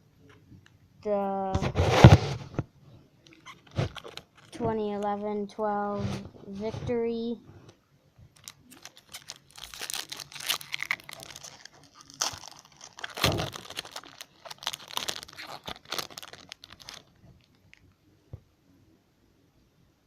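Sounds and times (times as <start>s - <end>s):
wrapper crinkling and tearing: 3.3s - 4.6s, 8.4s - 17.8s.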